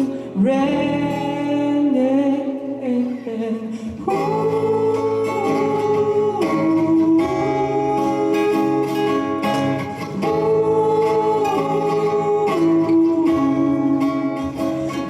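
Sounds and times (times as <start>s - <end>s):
acoustic guitars strumming: 0.0s - 15.0s
person singing wordless notes: 0.0s - 15.0s.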